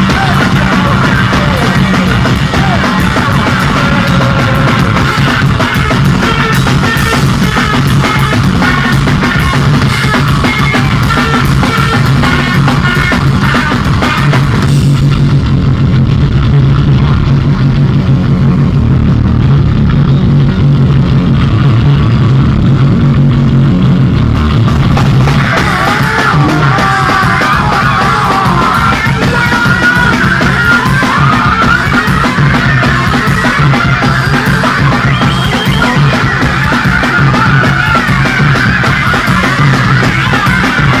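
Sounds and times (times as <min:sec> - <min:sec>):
high-pitched squealing line: 0:00.0 - 0:15.5, 0:24.6 - 0:41.0
live rock band playing: 0:00.0 - 0:41.0.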